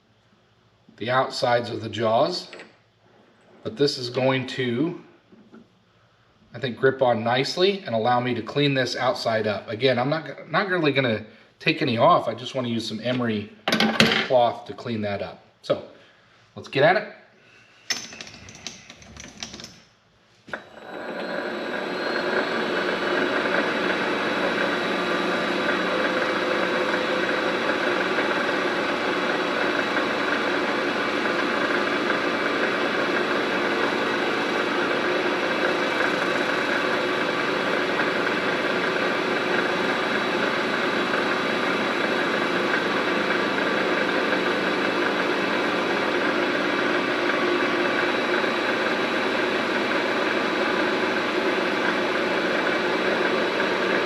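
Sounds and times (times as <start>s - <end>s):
lathe motor running: 20.5s - 54.0s.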